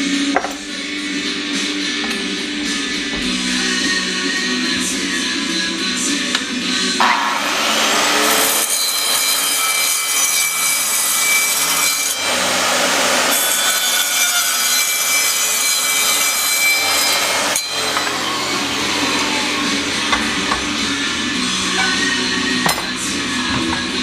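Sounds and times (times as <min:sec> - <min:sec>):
power tool grinding steel: 0:06.5 - 0:23.9.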